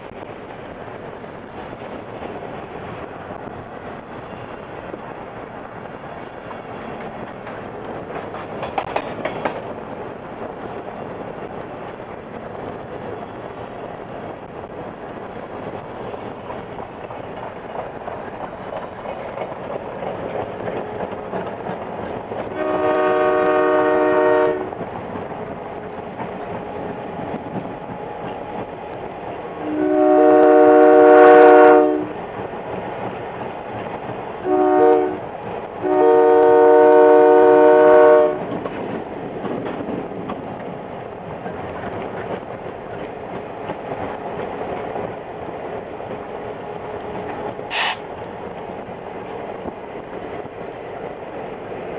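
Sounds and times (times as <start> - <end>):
freight train clattering: 0.0 - 51.9
locomotive air horn blasts: 22.5 - 24.7, 29.6 - 32.2, 34.4 - 35.2, 35.8 - 38.5.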